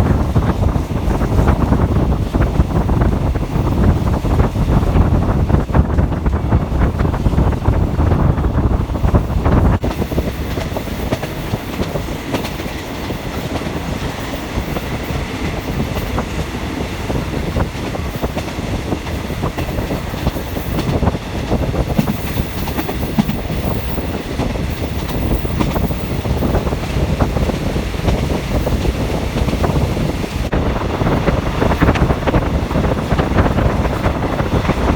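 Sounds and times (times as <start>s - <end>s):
train carriage rumbling on track: 0.0s - 34.9s.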